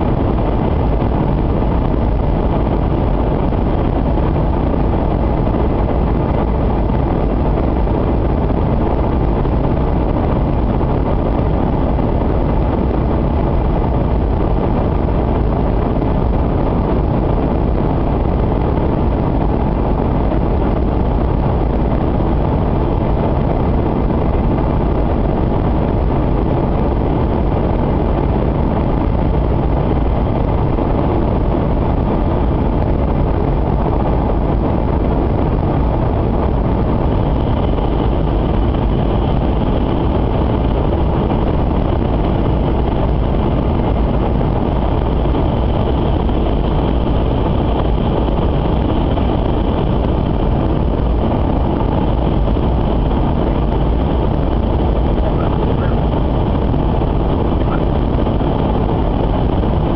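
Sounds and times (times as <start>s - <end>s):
train rumble inside passenger cabin: 12.4s - 59.9s.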